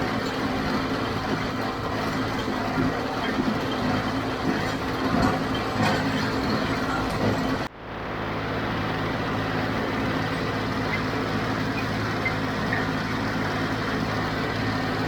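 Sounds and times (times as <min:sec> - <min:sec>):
baler knocking and clattering: 0:00.0 - 0:07.7
diesel tractor engine running: 0:00.0 - 0:15.0.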